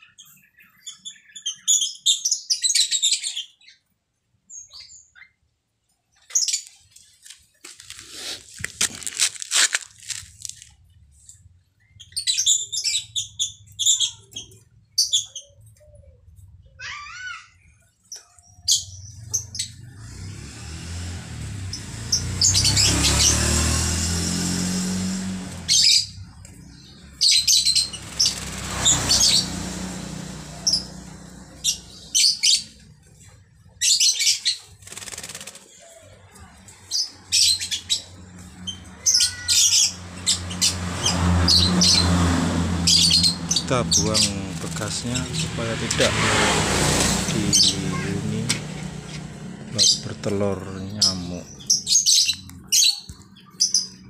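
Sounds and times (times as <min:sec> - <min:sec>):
bird chirps and calls: 0:00.0 - 0:03.9, 0:11.8 - 0:54.0
bird wings flapping and splashing: 0:27.6 - 0:30.4, 0:34.7 - 0:35.7.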